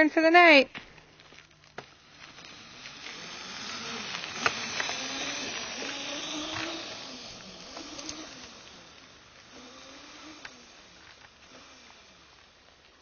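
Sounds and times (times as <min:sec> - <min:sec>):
small motorcycle passing by: 0:01.7 - 0:13.0
sharp clicks: 0:03.8 - 0:09.1.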